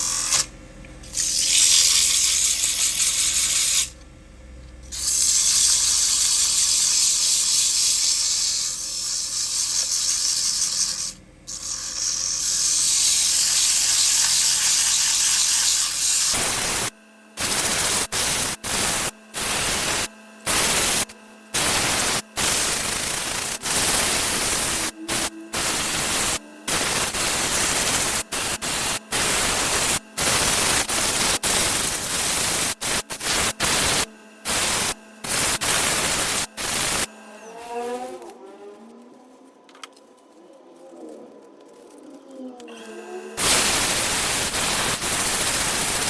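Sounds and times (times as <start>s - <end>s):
faint steady hum: 0.0s - 46.0s
power tool hissing on wood: 4.9s - 37.1s, 43.2s - 46.0s.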